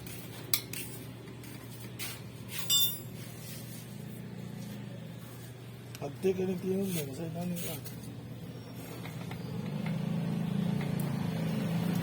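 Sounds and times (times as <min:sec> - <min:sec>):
ringing metallic clink: 0:02.6 - 0:03.2.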